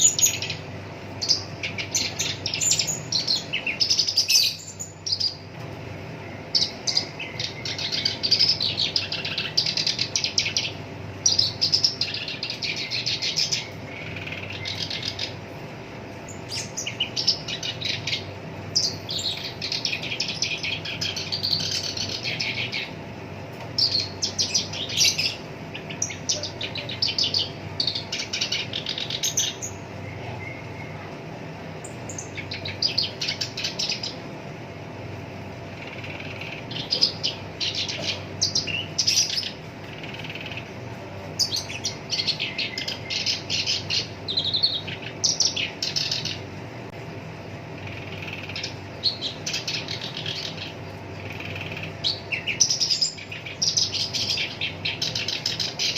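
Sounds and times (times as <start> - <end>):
warbler singing: 0.0 - 55.9.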